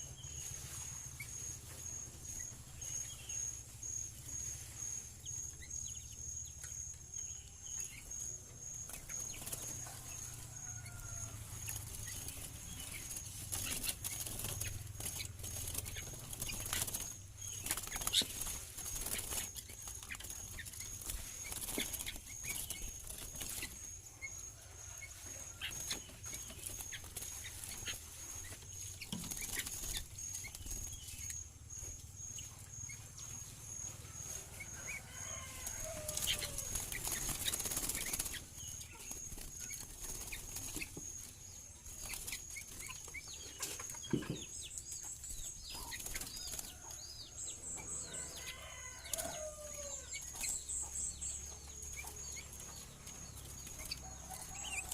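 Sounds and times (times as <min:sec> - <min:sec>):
bird chirping: 0:00.0 - 0:54.9
wing flutters: 0:08.9 - 0:24.0, 0:24.6 - 0:31.4, 0:34.6 - 0:43.9.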